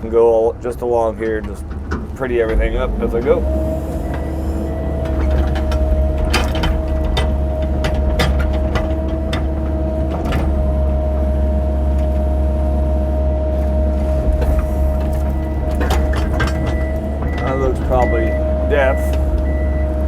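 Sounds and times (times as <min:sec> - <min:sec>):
diesel engine running with whine: 0:00.0 - 0:20.0
excavator bucket knocks and clunks: 0:01.2 - 0:10.9, 0:13.7 - 0:20.0.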